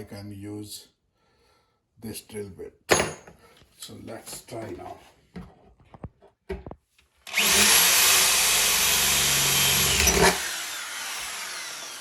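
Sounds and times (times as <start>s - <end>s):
electric drill boring: 7.2s - 12.0s.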